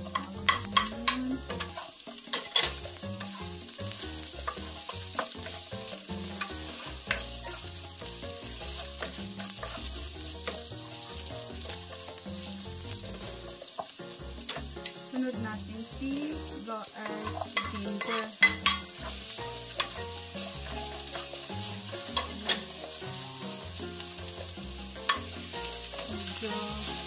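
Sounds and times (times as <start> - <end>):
spatula tapping pan: 0.0 - 15.4, 16.1 - 27.0
onion sizzling in hot oil: 0.0 - 27.0
spoon clicking against pan: 0.1 - 1.7, 17.1 - 19.0.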